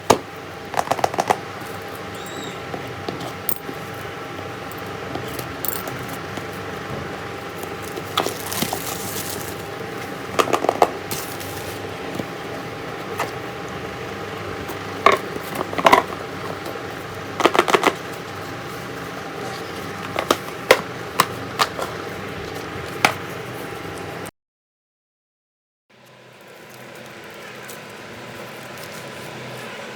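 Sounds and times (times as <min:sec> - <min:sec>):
packaging rustling: 0:07.6 - 0:09.7.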